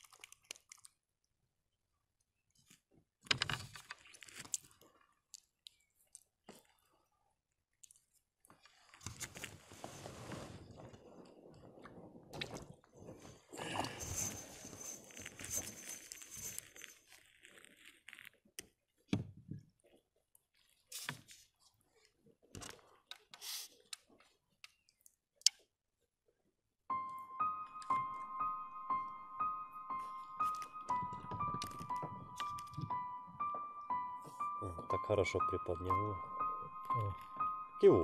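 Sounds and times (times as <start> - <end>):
hands handling fish and line: 13.8 - 18.8.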